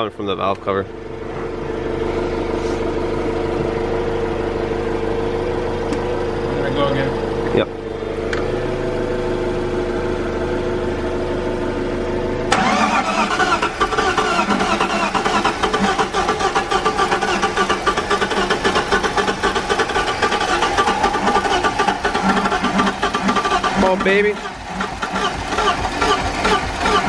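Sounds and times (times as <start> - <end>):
car engine running rough: 0.0 - 27.0
starter motor cranking: 12.5 - 27.0.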